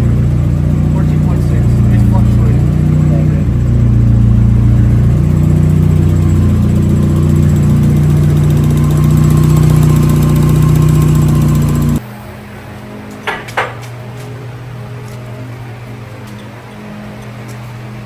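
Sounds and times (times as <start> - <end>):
pickup engine running: 0.0 - 12.0.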